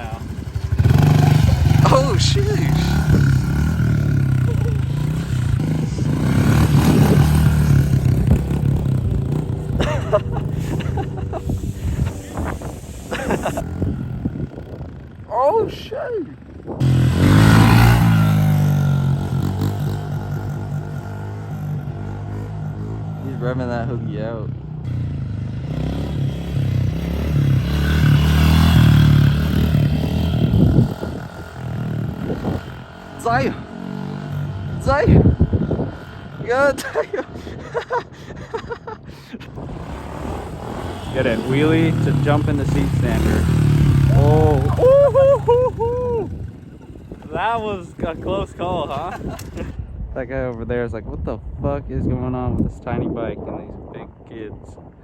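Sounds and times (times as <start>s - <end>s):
pit bike engine running: 0.0s - 15.3s, 39.6s - 49.7s.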